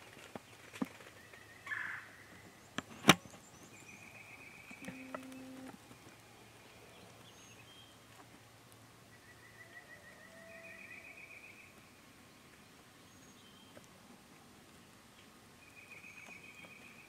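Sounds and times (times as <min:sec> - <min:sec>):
songbird trill: 0:01.2 - 0:05.7, 0:06.4 - 0:08.0, 0:09.1 - 0:12.0, 0:15.6 - 0:17.0.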